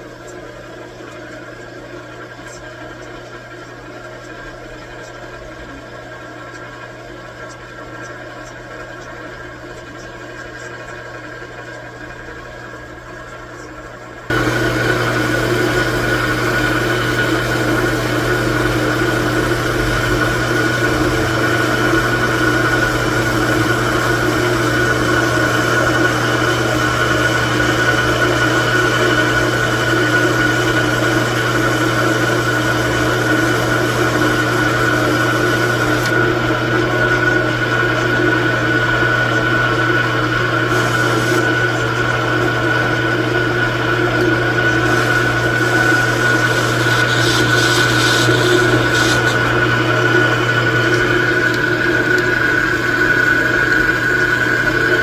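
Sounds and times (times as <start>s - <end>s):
metal lathe motor hum and whine: 14.2s - 55.0s.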